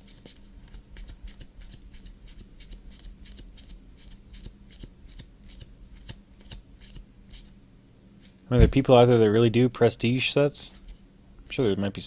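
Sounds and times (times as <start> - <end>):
faint electrical hum: 0.0 - 12.0
cards flipping: 0.1 - 7.5.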